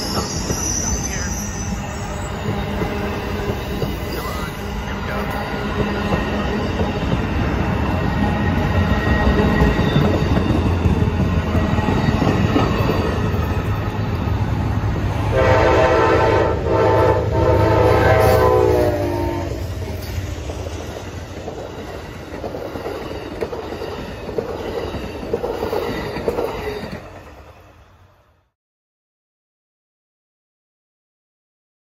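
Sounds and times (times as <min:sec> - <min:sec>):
train passing with rumble: 0:00.0 - 0:28.5
train horn blasts: 0:15.2 - 0:19.8.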